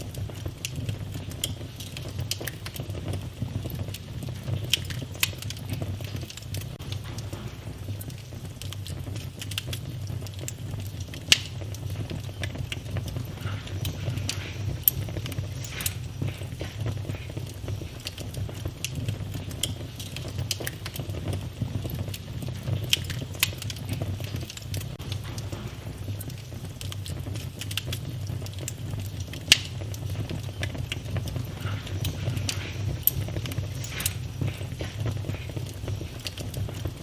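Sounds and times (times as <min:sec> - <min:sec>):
fire low rumble: 0:00.0 - 0:37.0
wood fire crackling and popping: 0:00.0 - 0:37.0.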